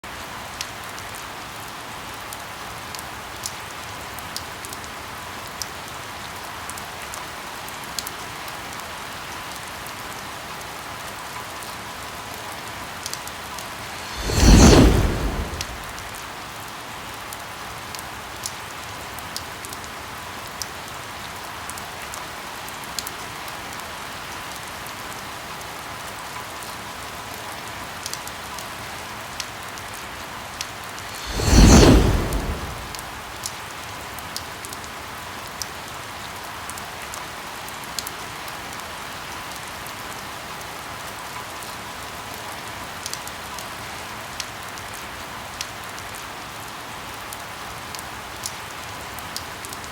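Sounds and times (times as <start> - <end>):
rain hissing: 13.6 - 16.2, 31.0 - 33.4
thunder crack: 13.8 - 16.1, 31.1 - 33.3.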